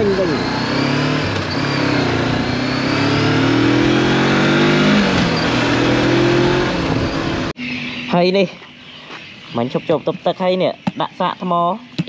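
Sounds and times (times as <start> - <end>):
motorcycle engine accelerating: 0.0 - 7.6.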